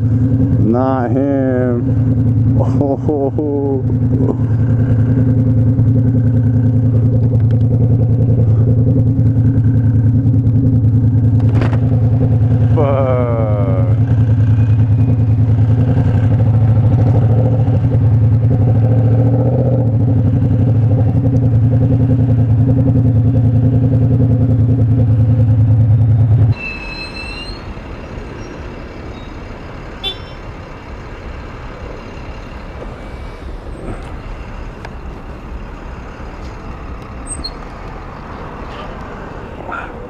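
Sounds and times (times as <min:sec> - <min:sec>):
motorcycle engine idling: 0:00.0 - 0:15.8
street traffic noise: 0:00.0 - 0:40.0.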